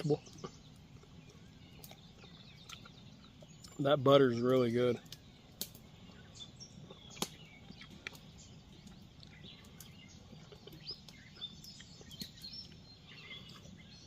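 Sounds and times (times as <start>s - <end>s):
small birds chirping: 0.0s - 14.0s
sharp clicks: 4.5s - 5.8s, 7.1s - 9.9s.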